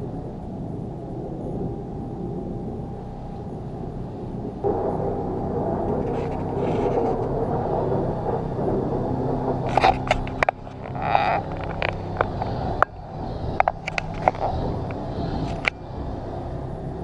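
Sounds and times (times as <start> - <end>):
diesel engine running: 0.0 - 17.0
sharp clicks and knocks: 9.5 - 15.8.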